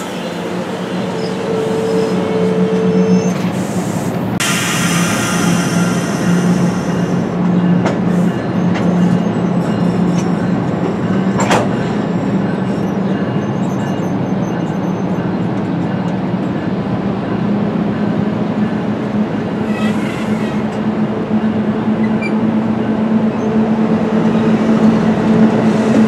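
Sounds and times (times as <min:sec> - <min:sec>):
locomotive drone: 0:00.0 - 0:26.0.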